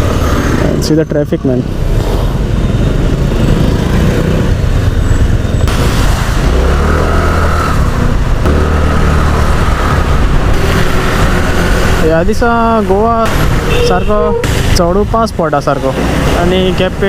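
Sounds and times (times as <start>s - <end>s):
wind on microphone: 4.5s - 12.1s.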